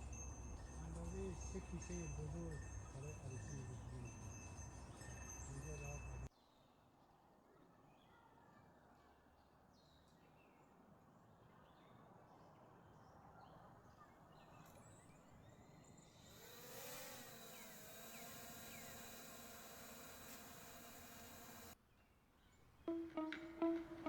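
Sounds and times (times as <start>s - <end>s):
faint forest ambience: 0.0s - 24.0s
soft stringed instrument music: 22.9s - 24.0s.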